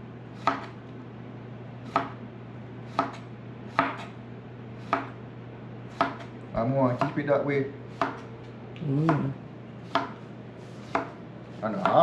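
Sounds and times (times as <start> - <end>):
knife chopping on cutting board: 0.4 - 0.8, 1.8 - 2.2, 2.9 - 4.2, 4.8 - 5.2, 5.9 - 7.3, 7.9 - 8.3, 9.8 - 12.0.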